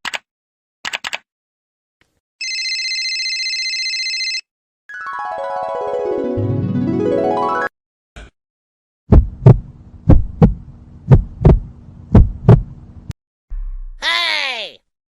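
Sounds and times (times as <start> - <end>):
heartbeat thumps: 9.1 - 12.9
steady low hum: 9.1 - 14.0.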